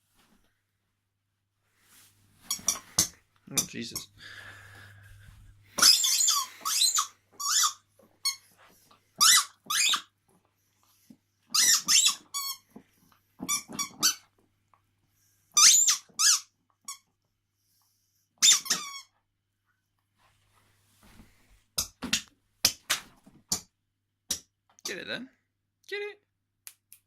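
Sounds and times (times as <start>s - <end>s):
squeaky dog toy squeaking: 5.8s - 8.4s, 9.2s - 10.1s, 11.5s - 12.6s, 15.6s - 17.1s, 18.4s - 19.1s.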